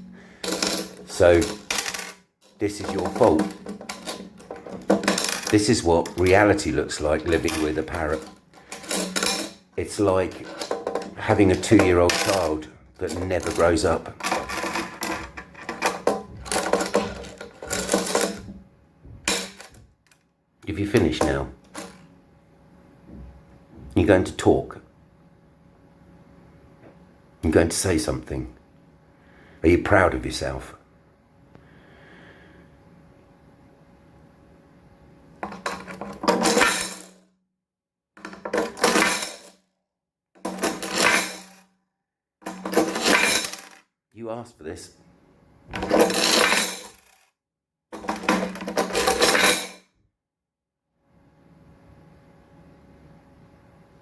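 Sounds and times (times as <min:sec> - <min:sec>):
metal coins clattering: 0:00.4 - 0:18.5, 0:19.3 - 0:19.8, 0:35.4 - 0:37.2, 0:38.2 - 0:39.6, 0:40.5 - 0:41.6, 0:42.4 - 0:43.8, 0:45.8 - 0:47.2, 0:48.0 - 0:49.8.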